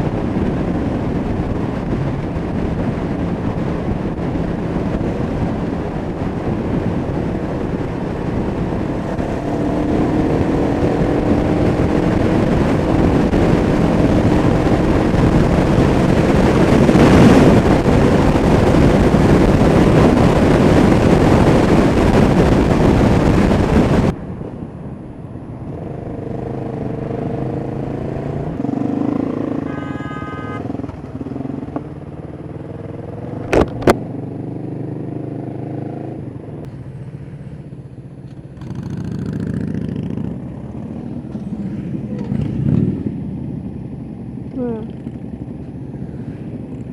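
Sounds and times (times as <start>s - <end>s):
wind rush on microphone: 0.0s - 46.9s
motorcycle engine running: 25.8s - 46.9s.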